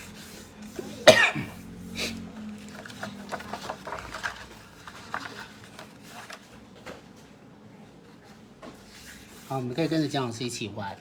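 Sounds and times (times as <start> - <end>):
person coughing: 0.9 - 2.1.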